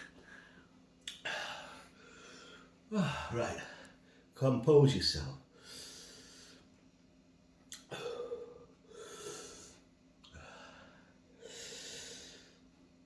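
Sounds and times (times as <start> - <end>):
man breathing heavily: 0.0 - 4.3, 5.5 - 6.7, 7.9 - 12.7.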